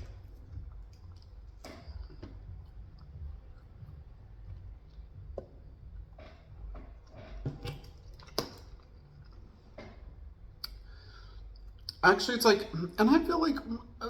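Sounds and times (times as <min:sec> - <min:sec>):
person chewing food: 0:00.0 - 0:12.0
steady low hum: 0:00.0 - 0:14.0
wet mouth clicks: 0:10.6 - 0:10.8.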